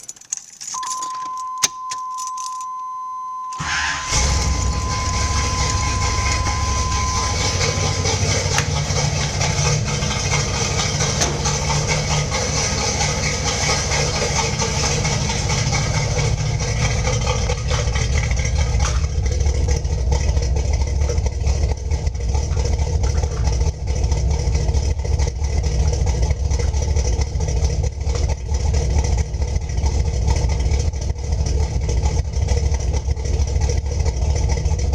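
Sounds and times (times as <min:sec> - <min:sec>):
car engine starting and idling: 0:00.0 - 0:34.9
high electronic tone: 0:00.8 - 0:08.6.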